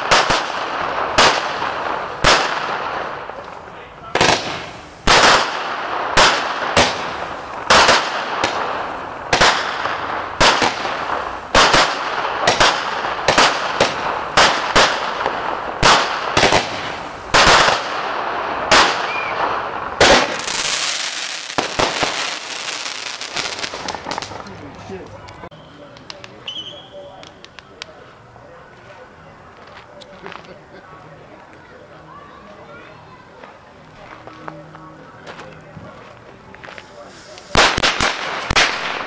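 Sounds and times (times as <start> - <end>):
fireworks bangs: 0.0 - 28.2, 35.9 - 39.0
fireworks crackling: 0.0 - 39.0.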